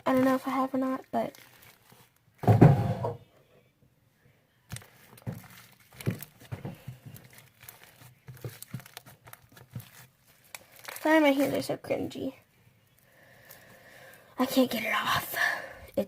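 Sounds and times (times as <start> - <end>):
slime being kneaded by hand: 0.0 - 2.2, 4.7 - 12.0.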